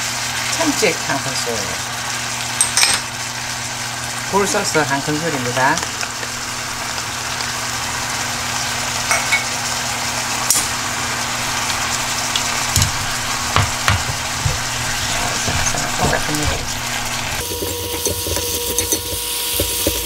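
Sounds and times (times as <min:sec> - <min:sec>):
food sizzling in a pan: 0:00.0 - 0:20.0
wooden utensils knocking on pan: 0:12.6 - 0:20.0.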